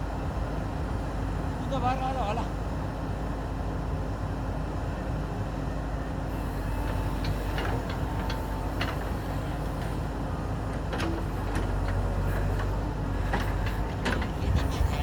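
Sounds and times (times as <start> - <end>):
backhoe diesel engine running: 6.2 - 15.0.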